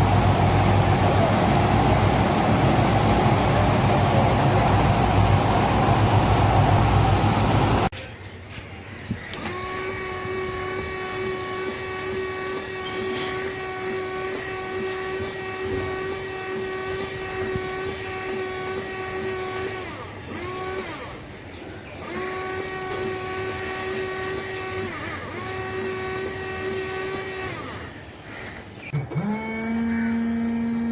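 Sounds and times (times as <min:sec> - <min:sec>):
car engine whining at high revs: 0:00.0 - 0:07.9.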